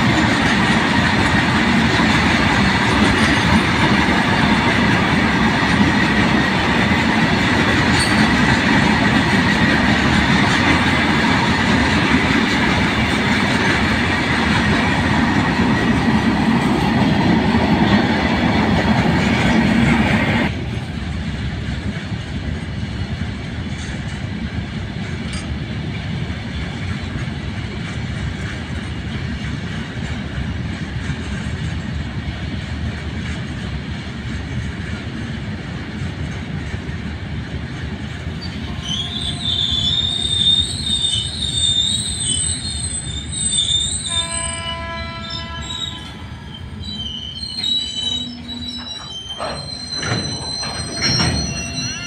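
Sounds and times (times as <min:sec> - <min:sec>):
freight train rumbling on rails: 0:00.0 - 0:52.0
train wheel squeal: 0:02.6 - 0:04.0, 0:07.6 - 0:12.3, 0:38.3 - 0:52.0.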